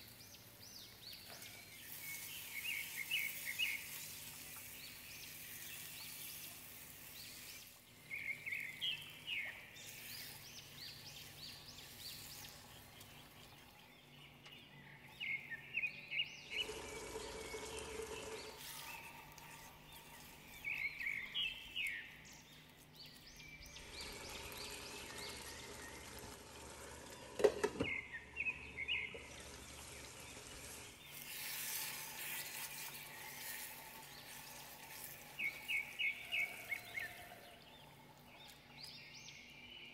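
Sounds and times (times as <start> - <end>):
birds chirping: 0.0 - 39.9
food sizzling in a pan: 29.4 - 37.2.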